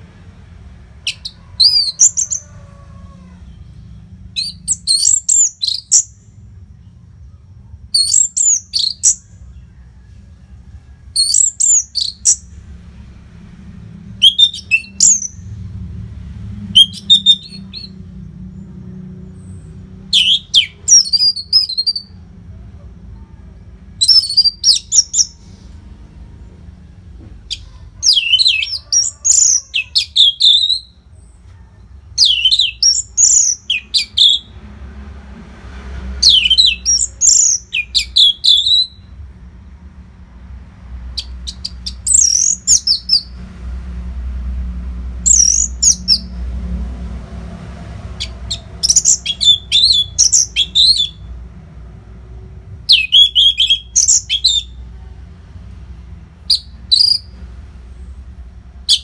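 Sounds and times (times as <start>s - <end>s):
thrush singing whistled phrases: 1.0s - 2.5s, 4.3s - 6.2s, 8.0s - 9.4s, 11.2s - 12.5s, 14.2s - 15.4s, 16.8s - 18.0s, 20.0s - 22.2s, 24.0s - 25.5s, 27.5s - 31.0s, 32.2s - 34.6s, 36.2s - 39.1s, 41.2s - 43.4s, 45.2s - 46.4s, 48.2s - 51.3s, 52.9s - 54.8s, 56.5s - 57.4s.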